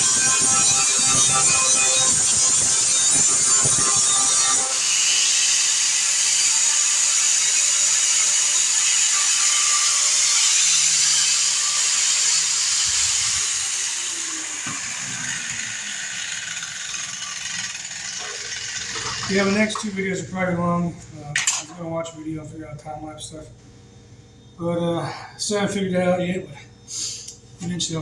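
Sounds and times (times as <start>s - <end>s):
angle grinder on metal: 0.0s - 20.0s.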